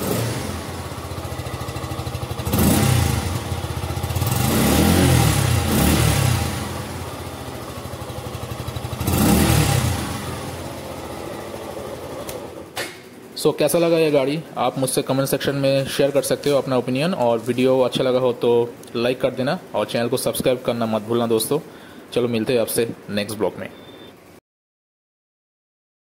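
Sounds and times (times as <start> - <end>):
motorcycle engine idling and revving: 0.0 - 13.1.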